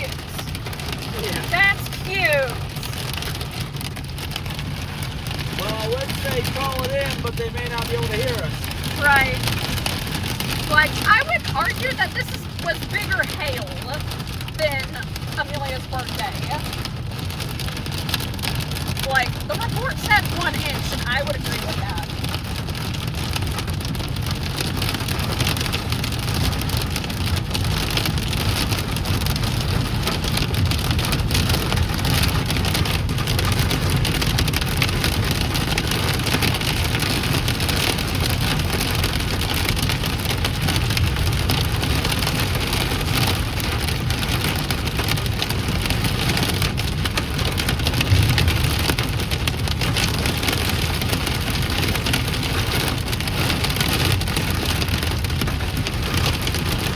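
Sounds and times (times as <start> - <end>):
car rumbling on road: 0.0 - 56.9
hail drumming on car roof: 0.0 - 56.9
loud thump: 48.0 - 49.2.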